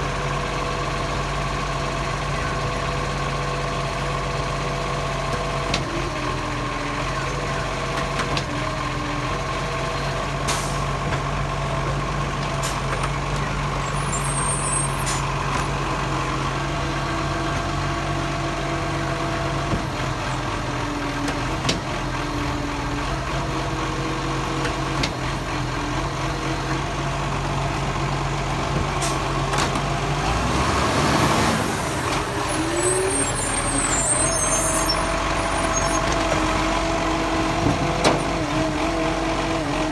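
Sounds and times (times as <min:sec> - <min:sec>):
garbage truck engine running: 0:00.0 - 0:39.9.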